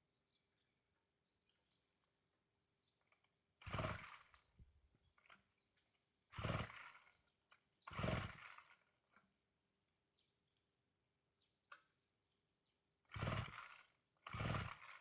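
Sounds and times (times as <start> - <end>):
chainsaw starter cord pulls: 3.0 - 5.6, 6.3 - 9.4, 13.1 - 15.0.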